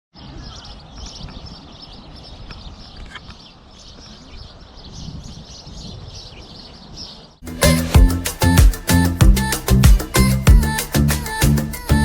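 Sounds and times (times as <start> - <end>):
small birds chirping: 0.1 - 7.4.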